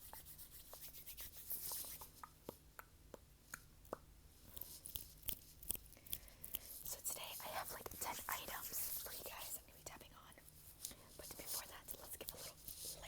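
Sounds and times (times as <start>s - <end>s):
hands rubbing: 0.0s - 2.2s.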